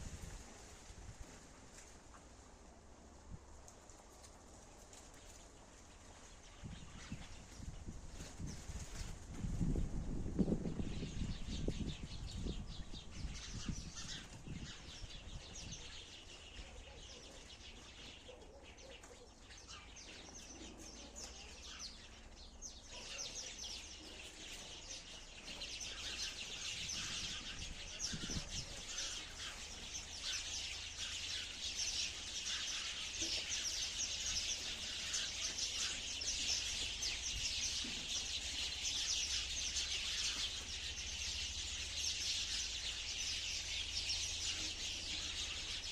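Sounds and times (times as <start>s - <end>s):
sparrows chirping: 4.9s - 45.9s.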